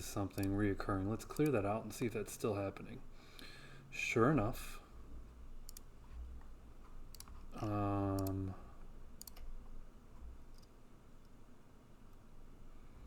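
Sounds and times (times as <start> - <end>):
computer mouse clicks: 0.3 - 0.6, 1.2 - 1.6, 5.7 - 5.9, 6.8 - 8.4, 9.2 - 9.5, 10.5 - 11.4.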